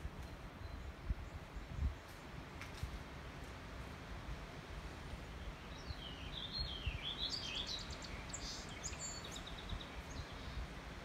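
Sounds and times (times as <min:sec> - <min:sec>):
songbird singing: 0:00.0 - 0:02.4, 0:05.0 - 0:11.0.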